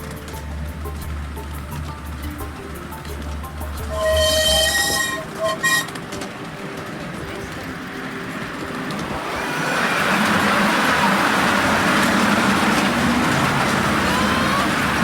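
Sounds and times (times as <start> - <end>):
miniature train rolling: 0.0 - 15.0
faint squeals: 3.9 - 6.0
voices in background: 5.9 - 9.2.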